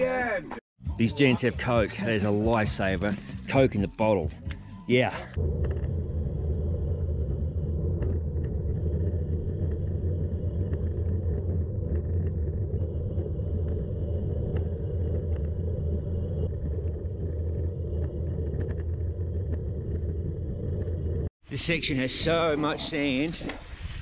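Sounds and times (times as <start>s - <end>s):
bike tyres on gravel: 5.4s - 21.3s
wind rumble on microphone: 5.4s - 24.0s.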